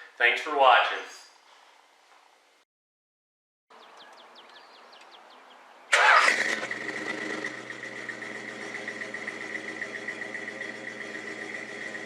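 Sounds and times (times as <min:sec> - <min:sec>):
car engine starting and idling: 0:05.9 - 0:12.0.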